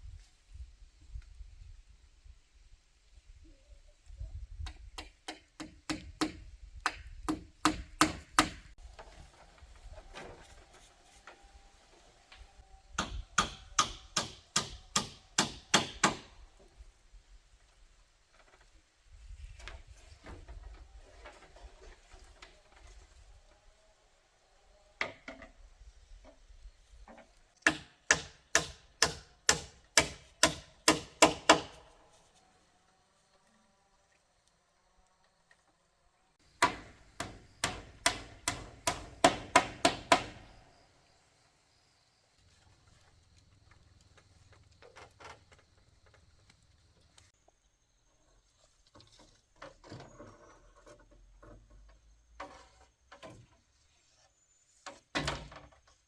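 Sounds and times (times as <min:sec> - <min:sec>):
hand tool striking wood: 0:04.7 - 0:08.7, 0:13.0 - 0:16.4, 0:27.6 - 0:31.9, 0:36.5 - 0:40.6
rustling: 0:08.8 - 0:12.7.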